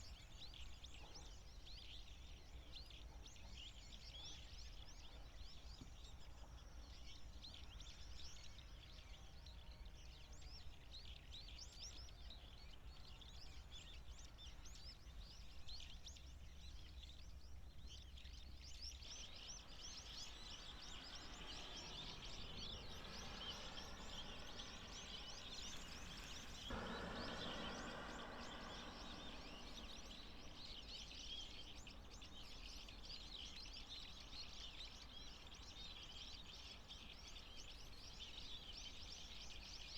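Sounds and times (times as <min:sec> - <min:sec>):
birds trilling calls: 0:19.2 - 0:35.1.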